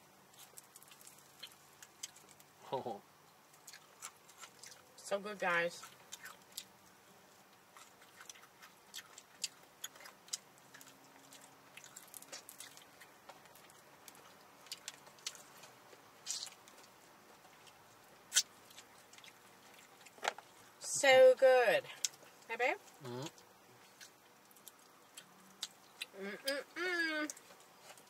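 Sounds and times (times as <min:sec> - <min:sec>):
small crunches: 0:00.3 - 0:02.5, 0:07.7 - 0:20.6
chewing and mouth sounds: 0:03.6 - 0:05.0, 0:05.8 - 0:06.8, 0:07.5 - 0:20.7, 0:21.9 - 0:26.6.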